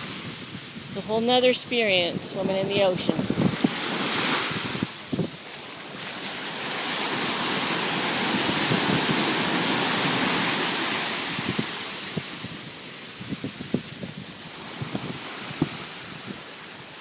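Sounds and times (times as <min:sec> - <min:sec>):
ocean wave washing in: 0:00.0 - 0:17.0
wind buffeting microphone: 0:00.0 - 0:17.0.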